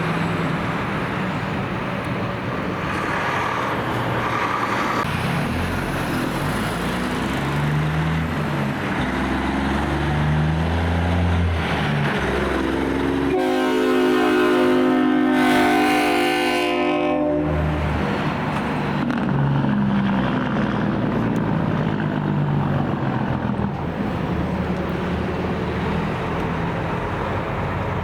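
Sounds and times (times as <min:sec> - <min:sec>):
diesel truck engine shifting gears: 0:00.0 - 0:13.3, 0:17.8 - 0:28.0
multi-note train horn: 0:12.8 - 0:17.9.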